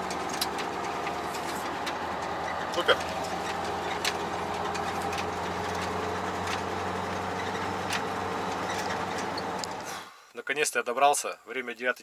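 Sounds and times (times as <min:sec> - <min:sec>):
truck diesel engine running: 0:00.0 - 0:10.2.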